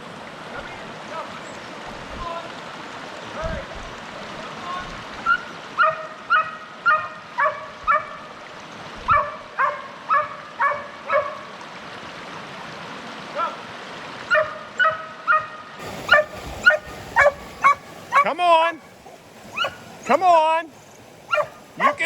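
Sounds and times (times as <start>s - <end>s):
stream rushing: 0.0s - 22.0s
puppy yipping and barking: 5.3s - 8.1s, 9.1s - 11.4s, 14.3s - 18.3s, 19.1s - 19.8s, 21.3s - 22.0s.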